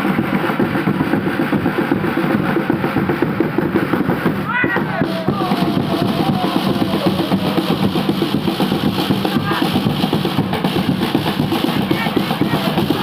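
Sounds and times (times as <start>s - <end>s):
drums beating fast rhythm: 0.0s - 13.0s
wavering chanting voice: 4.8s - 8.0s.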